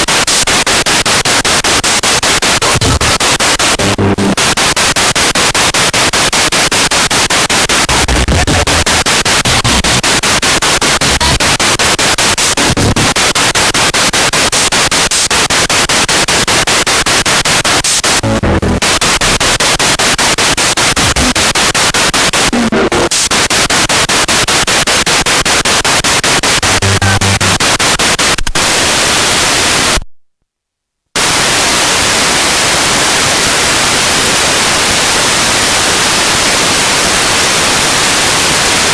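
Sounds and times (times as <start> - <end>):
pulsing radio static: 0.0 - 30.0
snatches of radio broadcast: 0.0 - 30.1.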